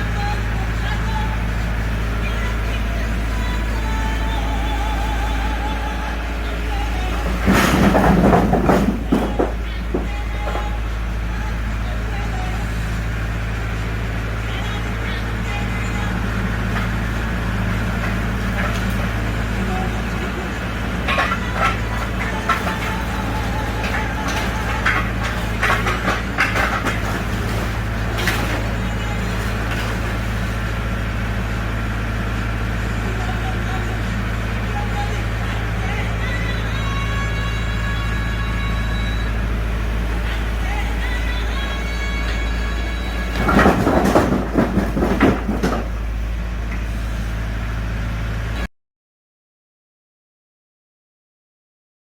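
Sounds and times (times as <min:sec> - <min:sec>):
motor humming: 0:00.0 - 0:48.6
engine running steadily: 0:00.0 - 0:48.7
clattering knocks: 0:05.4 - 0:13.3, 0:14.5 - 0:36.8, 0:43.3 - 0:47.0.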